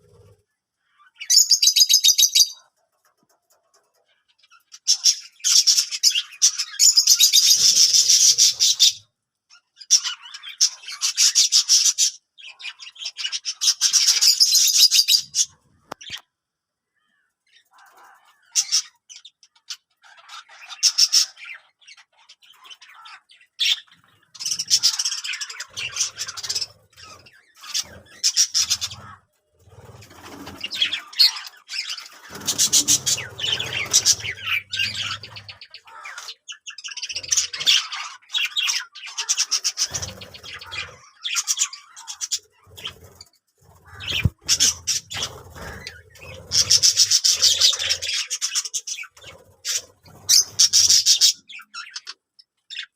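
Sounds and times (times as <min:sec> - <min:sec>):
budgerigars chirping: 0:04.5 - 0:09.0, 0:18.5 - 0:52.9.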